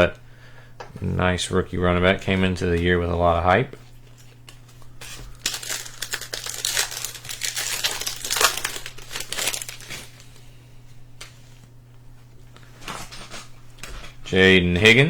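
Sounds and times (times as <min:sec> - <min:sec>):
wrapper tearing and crinkling: 0:04.0 - 0:10.3.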